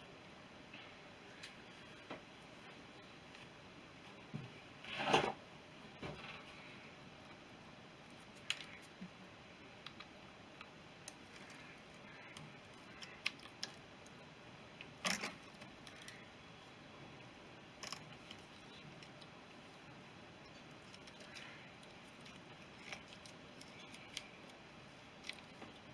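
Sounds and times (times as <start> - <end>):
metal parts clicking and tapping: 15.0 - 16.2.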